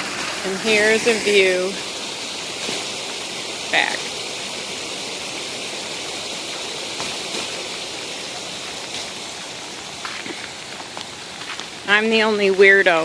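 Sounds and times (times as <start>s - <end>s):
rain falling: 0.0s - 13.0s
rainwater runoff rushing: 0.0s - 13.0s.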